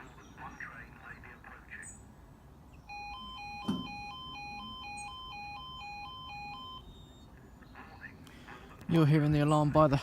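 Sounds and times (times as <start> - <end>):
two-tone crossing alarm: 2.8 - 8.1
thump: 3.6 - 4.0.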